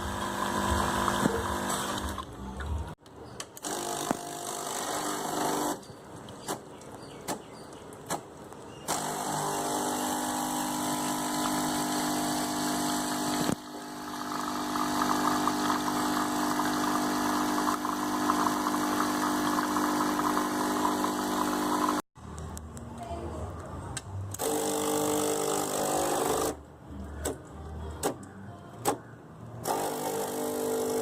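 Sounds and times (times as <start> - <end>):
espresso machine pump running: 0.0 - 2.2, 8.9 - 22.0, 24.4 - 26.5, 29.7 - 31.0.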